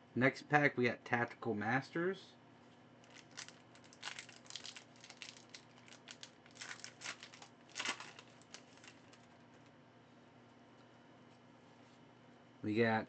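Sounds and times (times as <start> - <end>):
foil wrapper crinkling and tearing: 3.0 - 9.6.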